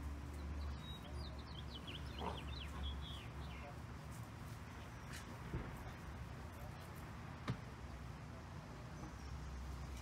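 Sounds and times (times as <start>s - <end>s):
bird chirping: 0.1s - 3.8s.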